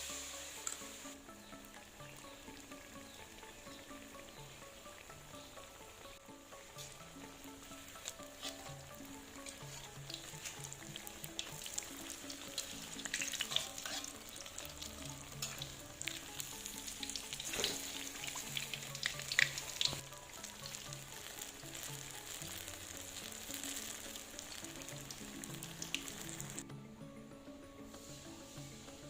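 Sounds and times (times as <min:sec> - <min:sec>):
food sizzling in hot oil: 0:00.0 - 0:26.6
soft background music: 0:00.0 - 0:29.0
oil crackling and popping: 0:06.7 - 0:26.6.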